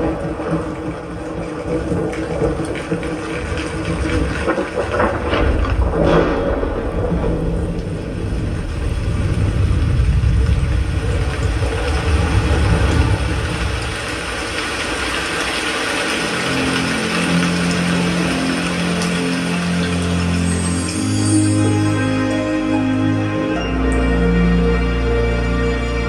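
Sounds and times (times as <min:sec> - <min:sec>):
deep rumble: 0:00.0 - 0:16.2
sustained low music notes: 0:04.8 - 0:26.0.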